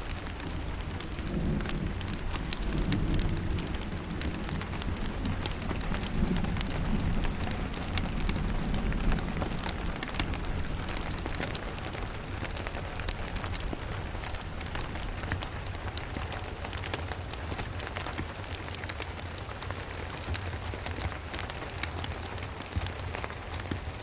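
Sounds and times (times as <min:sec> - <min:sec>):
distant thunder rumble: 0:00.0 - 0:16.2
steady rain: 0:00.0 - 0:24.0.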